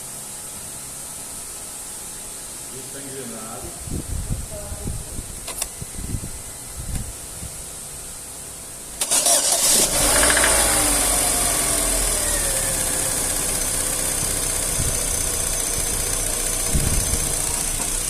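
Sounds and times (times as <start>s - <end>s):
car engine idling with whine: 9.7s - 18.0s.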